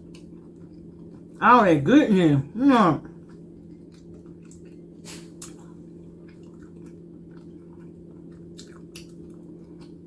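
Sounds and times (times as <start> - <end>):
steady low hum: 0.0 - 10.0
wet mouth chewing: 3.0 - 10.0.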